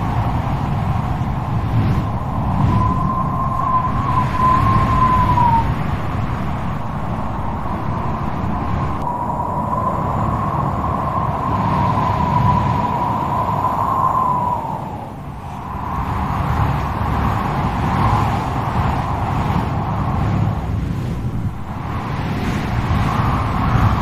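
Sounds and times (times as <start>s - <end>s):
strong wind howling: 0.0s - 24.0s.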